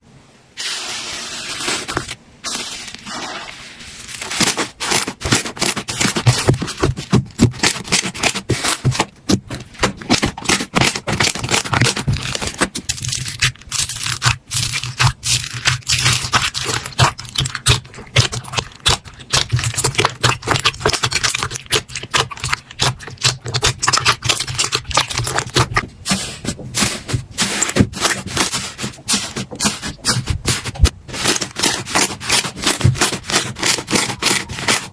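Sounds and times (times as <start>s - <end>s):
slime squished by hand: 4.2s - 25.8s.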